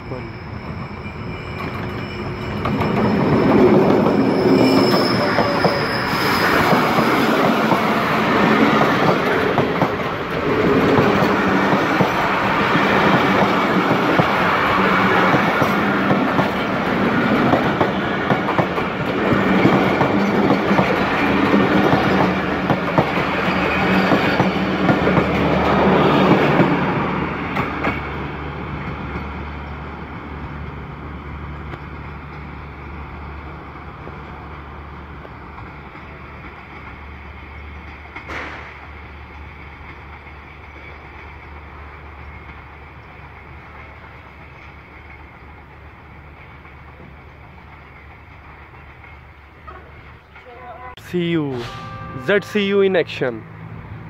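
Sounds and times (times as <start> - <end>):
locomotive engine drone: 51.6 - 54.0.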